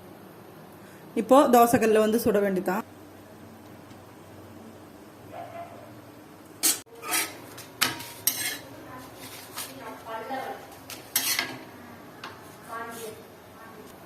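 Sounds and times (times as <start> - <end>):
metal cookware clattering: 6.6 - 8.7, 10.9 - 12.4.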